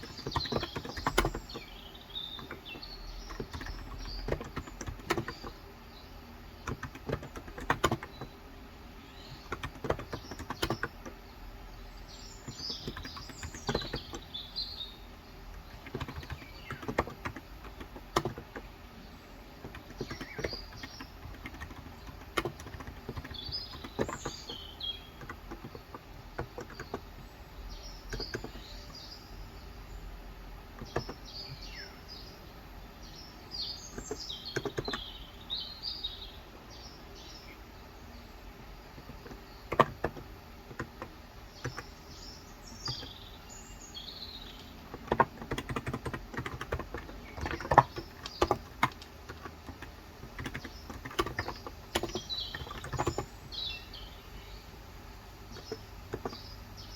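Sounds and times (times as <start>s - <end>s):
keyboard typing: 0.0s - 5.7s, 6.6s - 8.4s, 9.3s - 11.2s, 12.4s - 14.3s, 15.5s - 18.8s, 19.6s - 29.1s, 30.7s - 31.7s, 33.9s - 35.2s, 38.9s - 42.0s, 42.8s - 43.2s, 44.4s - 53.6s, 55.4s - 56.5s
small birds chirping: 0.0s - 56.9s.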